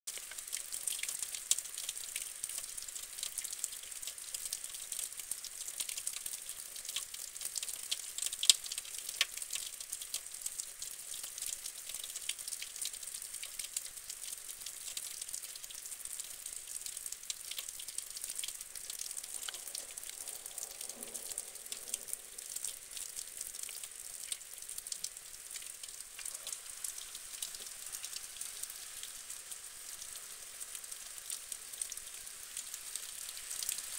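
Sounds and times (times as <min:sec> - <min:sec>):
raindrops crackling close by: 0:00.1 - 0:33.9
rain hissing: 0:14.9 - 0:33.9.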